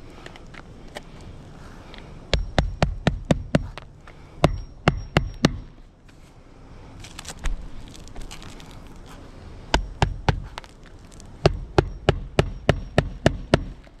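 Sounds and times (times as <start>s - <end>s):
hammer striking nails: 2.3s - 3.8s, 4.4s - 5.8s, 9.8s - 10.6s, 11.4s - 13.9s.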